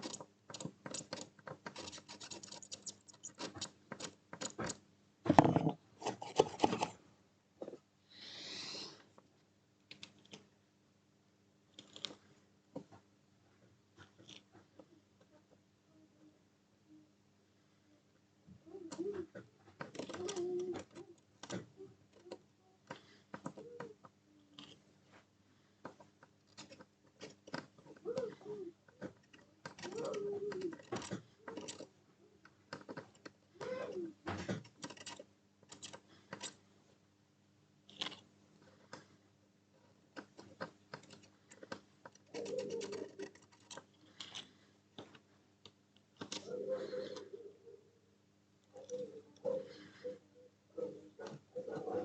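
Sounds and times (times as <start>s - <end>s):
pigeon cooing: 27.9s - 28.8s, 29.8s - 31.8s, 33.6s - 34.2s, 42.3s - 43.4s, 46.3s - 48.1s, 48.7s - 52.0s.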